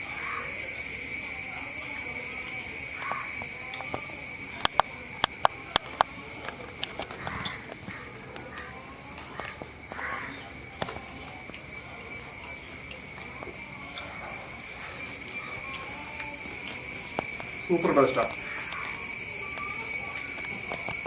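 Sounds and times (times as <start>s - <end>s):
high insect chorus: 0.0s - 21.0s
sharp clicks: 4.6s - 8.5s.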